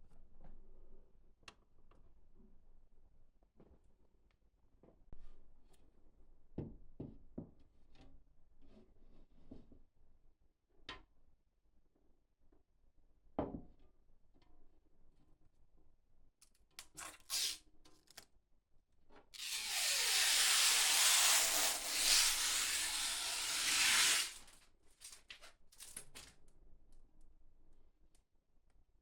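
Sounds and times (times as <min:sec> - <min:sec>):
hiss of air spray: 0:19.7 - 0:24.4.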